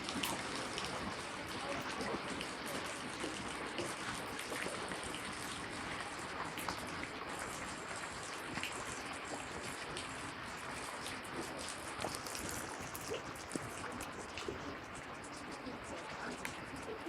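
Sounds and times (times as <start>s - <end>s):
steady water wash: 0.0s - 17.0s
water drips and splashes: 0.0s - 17.0s.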